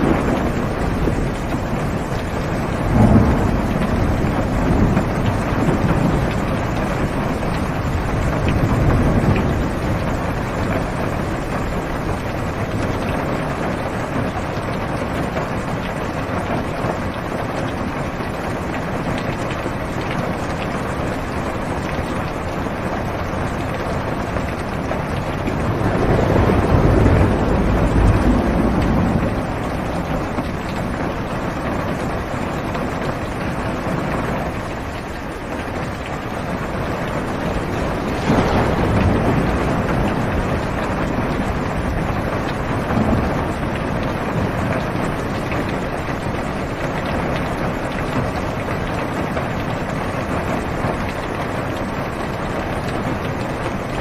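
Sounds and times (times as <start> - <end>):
heavy rain on car roof: 0.0 - 54.0
low rolling thunder: 0.0 - 54.0.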